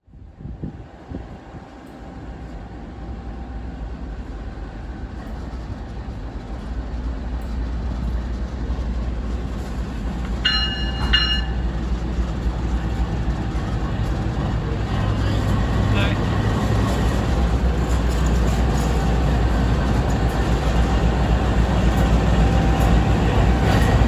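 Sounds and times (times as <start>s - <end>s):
diesel locomotive engine rumble: 0.0s - 24.0s
multi-note train horn blasts: 10.4s - 11.6s.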